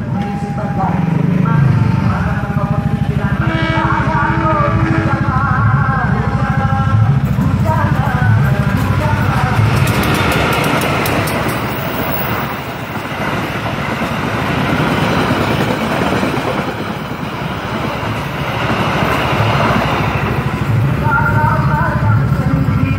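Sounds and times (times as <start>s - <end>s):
train wheels rumbling on rail: 0.0s - 22.9s.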